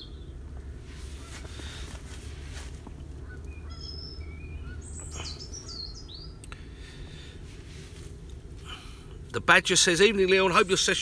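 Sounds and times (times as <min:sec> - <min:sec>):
low background rumble: 0:00.0 - 0:11.0
songbird chirping and whistling: 0:03.2 - 0:06.5.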